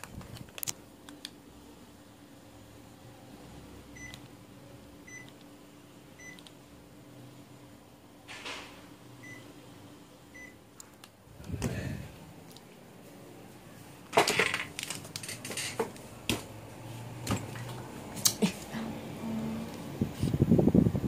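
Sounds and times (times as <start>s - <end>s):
steady low hum: 0.0s - 21.0s
rustling noise: 20.0s - 20.6s.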